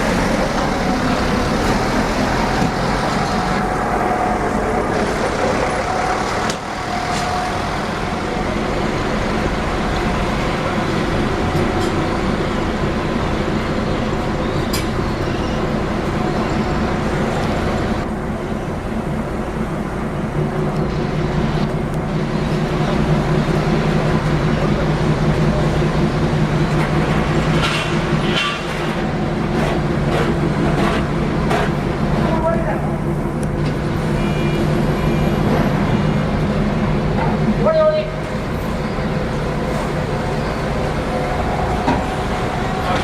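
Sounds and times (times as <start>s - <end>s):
diesel engines humming: 0.0s - 43.0s.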